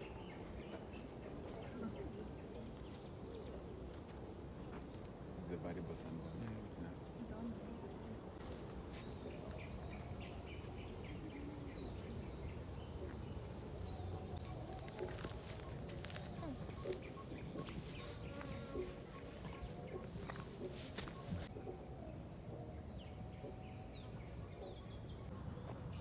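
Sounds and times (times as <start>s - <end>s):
birds chirping and whistling: 8.9s - 25.3s.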